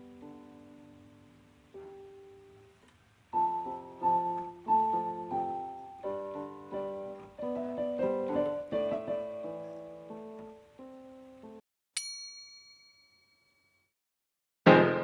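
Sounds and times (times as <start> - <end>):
piano music: 0.0 - 11.6, 14.7 - 15.0.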